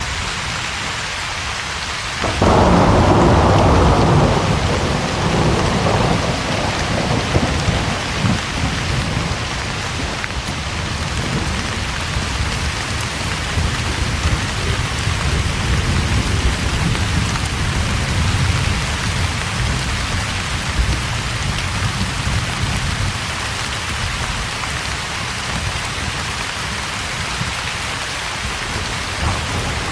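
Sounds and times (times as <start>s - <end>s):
rain on roof: 0.0s - 29.9s
thunder rumbling: 2.2s - 24.2s, 28.4s - 29.9s.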